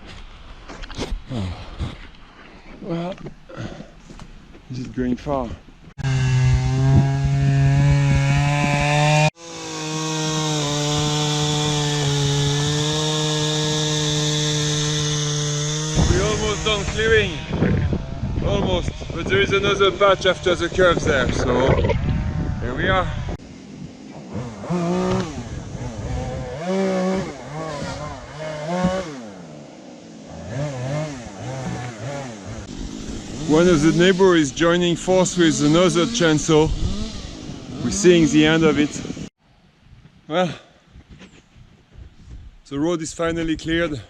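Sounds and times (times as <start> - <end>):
chainsaw cutting wood: 6.0 - 21.0, 23.4 - 39.3.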